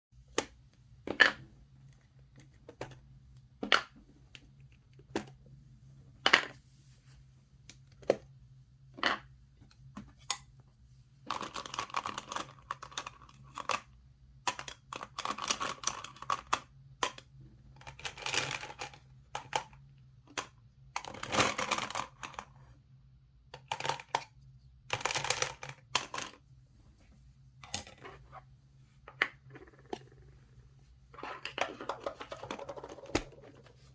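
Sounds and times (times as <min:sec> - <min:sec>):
gumballs rattling and rolling: 0:11.2 - 0:19.7, 0:31.2 - 0:33.7.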